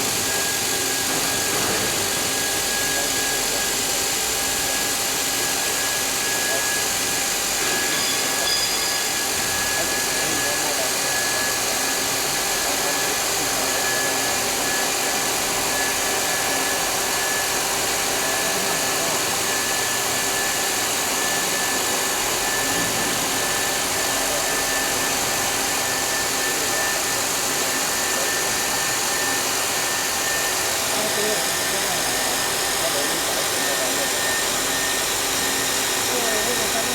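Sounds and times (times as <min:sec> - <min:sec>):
milling machine hiss and whine: 0:00.0 - 0:36.9.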